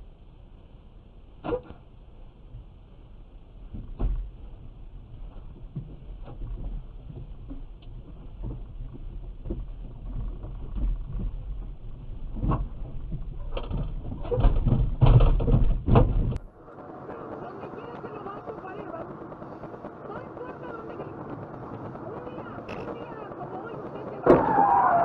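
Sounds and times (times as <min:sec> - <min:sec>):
car rumble: 0:00.0 - 0:25.0
knocks and thumps: 0:05.7 - 0:16.4.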